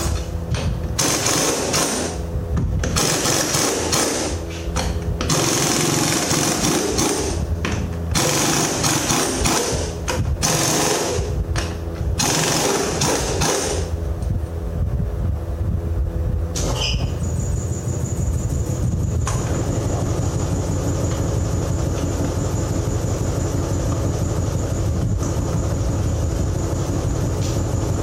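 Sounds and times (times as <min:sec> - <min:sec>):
pneumatic air tool hammering: 0:00.0 - 0:14.0, 0:16.6 - 0:17.2
low compressor hum: 0:00.0 - 0:28.0.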